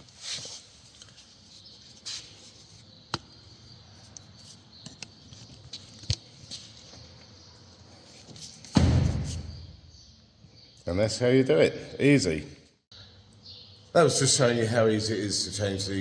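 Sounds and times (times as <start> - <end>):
rustling and handling of items: 0.0 - 3.0.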